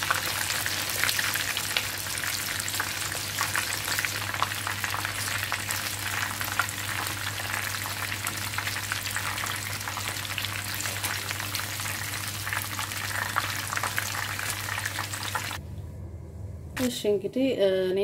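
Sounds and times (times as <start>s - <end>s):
chicken frying in hot oil: 0.0s - 15.6s
steady low hum: 10.6s - 18.0s.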